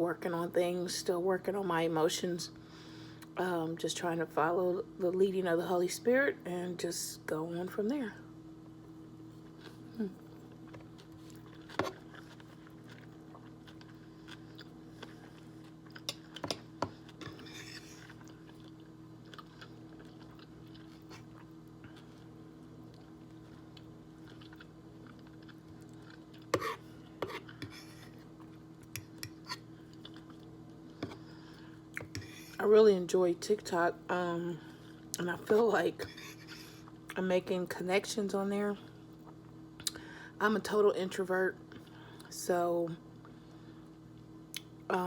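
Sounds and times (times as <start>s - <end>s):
steady low hum: 0.0s - 45.0s
person chewing food: 9.4s - 32.4s.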